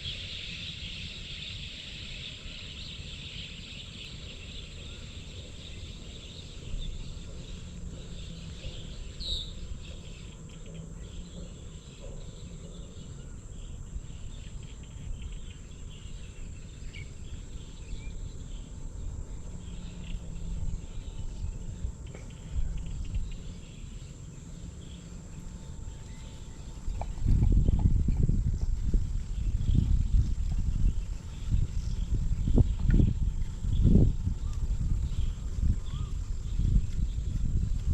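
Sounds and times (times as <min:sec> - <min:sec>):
insect chorus: 0:00.0 - 0:37.9
uneven low rumble: 0:02.3 - 0:37.9.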